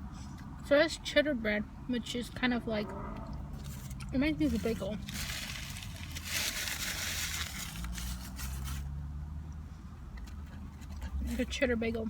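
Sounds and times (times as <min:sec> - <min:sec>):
low steady hum: 0:00.0 - 0:12.0
chewing and crunching food: 0:03.2 - 0:08.9, 0:09.5 - 0:12.0.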